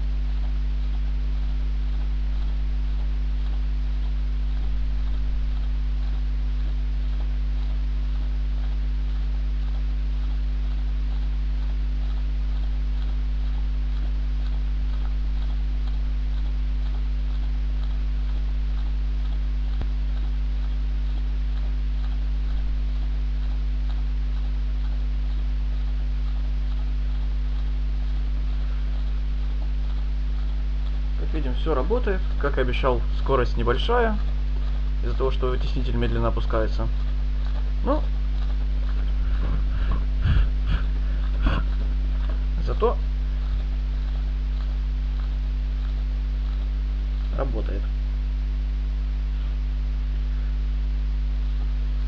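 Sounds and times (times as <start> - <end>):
electrical mains hum: 0.0 - 52.0.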